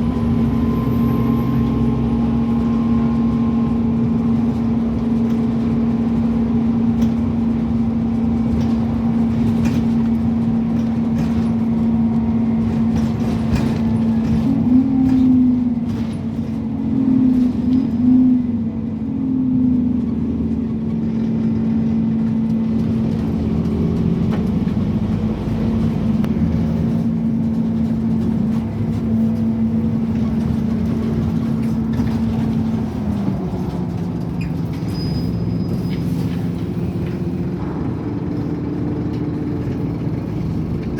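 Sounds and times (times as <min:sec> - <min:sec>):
bus engine drone: 0:00.0 - 0:40.9
rattles and clicks: 0:22.2 - 0:35.0.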